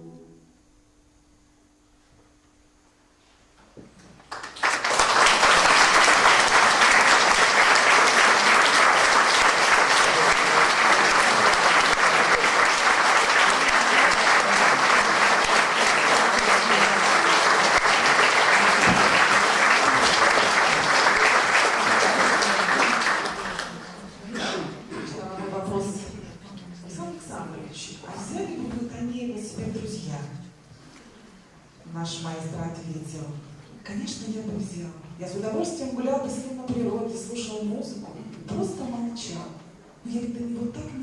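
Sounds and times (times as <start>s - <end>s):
audience applauding: 4.3s - 24.2s.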